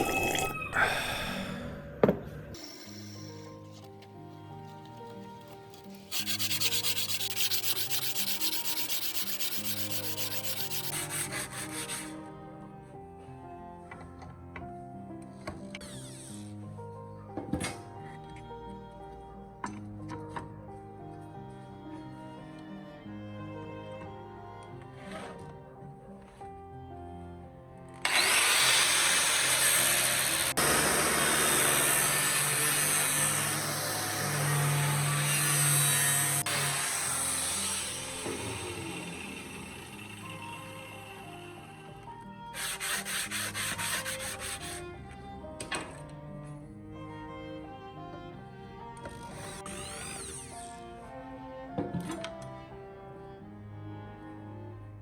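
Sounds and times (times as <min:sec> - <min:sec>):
background music: 0:00.0 - 0:55.0
power tool grinding hiss: 0:02.6 - 0:03.6, 0:05.7 - 0:12.1, 0:28.1 - 0:41.9
hand sanding strokes: 0:05.9 - 0:12.1, 0:42.6 - 0:44.8.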